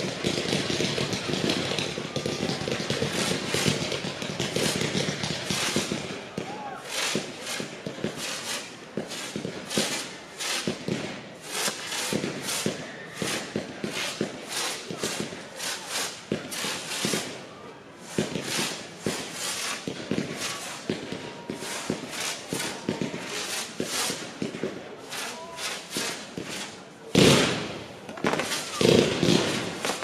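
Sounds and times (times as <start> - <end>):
sharp aerial firework bangs: 25.9 - 30.0.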